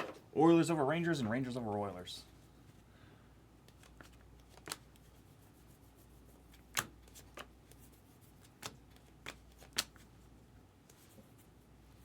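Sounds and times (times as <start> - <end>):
sharp card clicks and snaps: 3.6 - 5.0, 6.6 - 7.5, 8.6 - 10.0.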